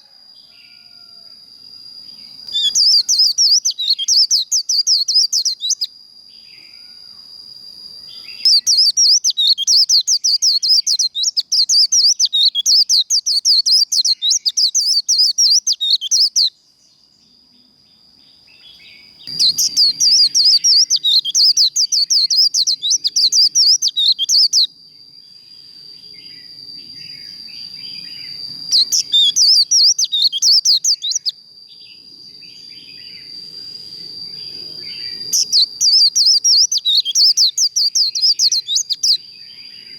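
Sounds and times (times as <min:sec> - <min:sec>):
bird twittering song: 0:02.1 - 0:06.9, 0:08.0 - 0:39.9.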